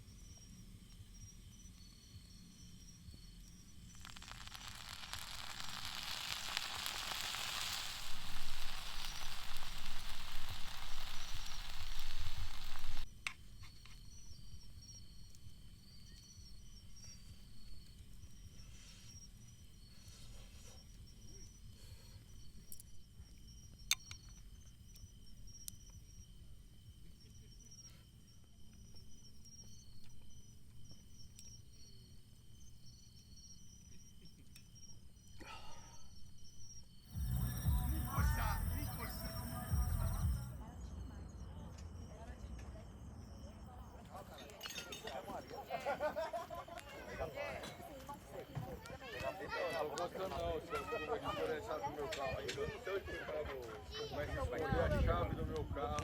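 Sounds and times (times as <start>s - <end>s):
crickets chirping: 0.0s - 56.0s
pulsed high chirps: 3.7s - 13.0s, 37.1s - 41.4s
food sizzling on a grill: 3.8s - 13.1s, 37.1s - 40.5s.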